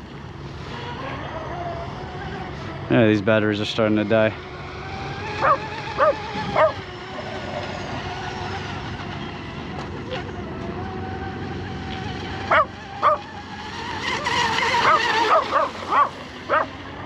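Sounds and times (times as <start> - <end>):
electric motor whining: 0.0 - 17.0
dog yipping: 5.4 - 6.8, 12.5 - 13.3, 14.8 - 16.7.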